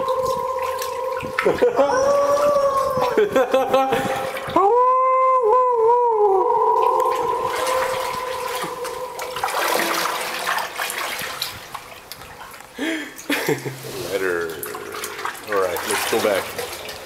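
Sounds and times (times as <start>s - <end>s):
person singing a wavering ooh: 0.0s - 3.6s, 4.2s - 10.4s
water splashing from paddling: 0.0s - 4.7s, 6.7s - 17.0s.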